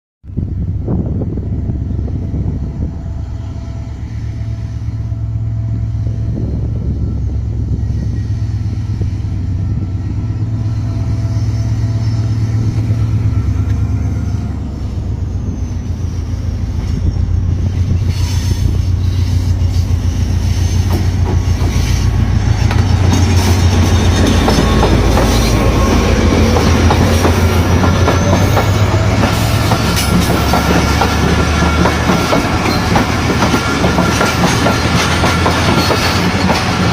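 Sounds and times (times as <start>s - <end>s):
diesel engine drone: 0.3s - 36.9s
train wheels clacking: 16.6s - 36.9s.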